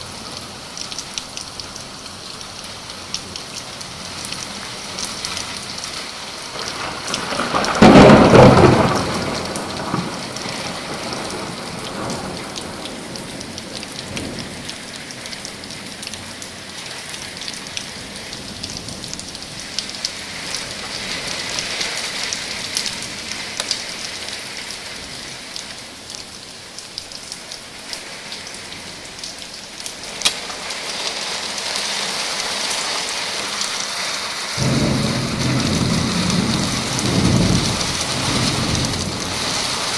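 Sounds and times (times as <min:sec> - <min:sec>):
heavy rain falling: 0:00.0 - 0:39.9
thunder clap rumbling: 0:06.5 - 0:14.7, 0:34.6 - 0:39.9.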